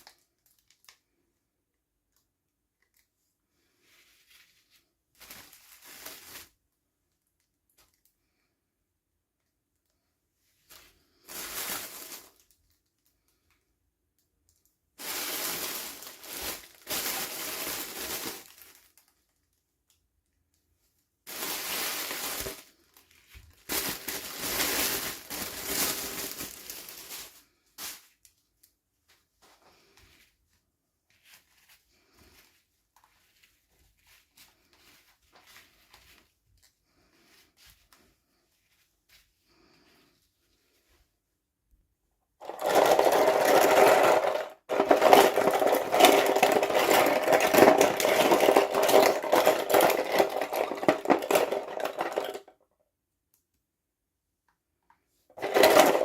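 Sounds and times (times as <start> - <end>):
faint handling sounds: 0.0 - 52.6
packaging torn and crinkled: 15.0 - 19.5.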